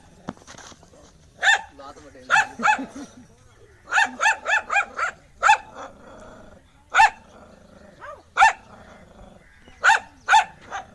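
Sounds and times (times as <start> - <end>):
dog barking aggressively: 1.4 - 2.9, 3.9 - 5.9, 8.0 - 8.7, 9.8 - 10.9
dog growling low: 5.7 - 9.5.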